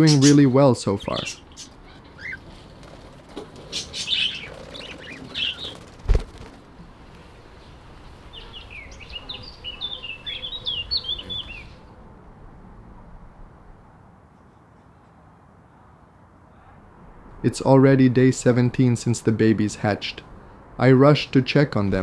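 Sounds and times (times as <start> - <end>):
budgerigars chirping: 0.0 - 2.4, 3.6 - 6.0, 8.2 - 11.8.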